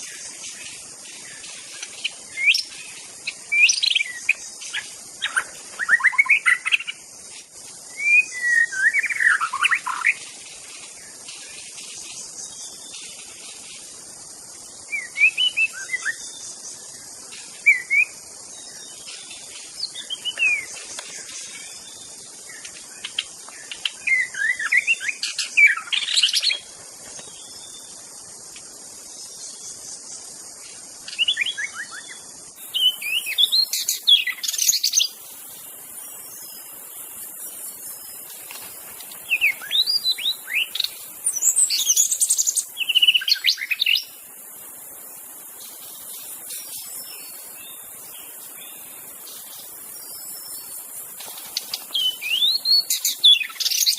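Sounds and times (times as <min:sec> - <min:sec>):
steady high hiss: 0:00.0 - 0:53.9
bird singing whistled phrases: 0:07.9 - 0:10.2, 0:14.9 - 0:16.4, 0:24.0 - 0:26.5, 0:31.2 - 0:35.1, 0:39.3 - 0:44.1, 0:51.9 - 0:53.9.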